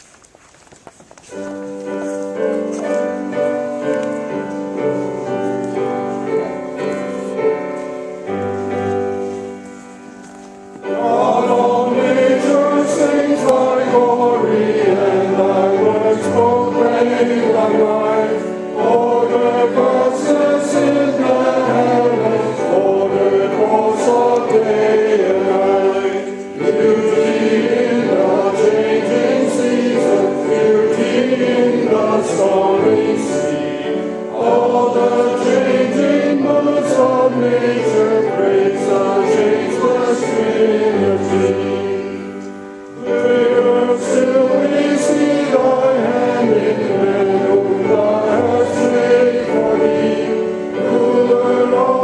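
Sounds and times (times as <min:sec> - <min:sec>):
choir singing a hymn: 0:10.8 - 0:52.0.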